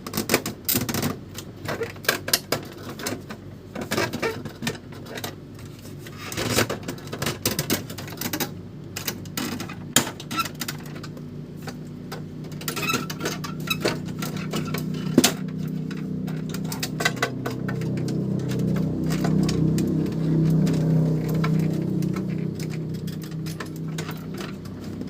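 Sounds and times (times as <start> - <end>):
steady low hum: 2.6 - 25.0
plastic parts and screws clicking: 6.2 - 25.0.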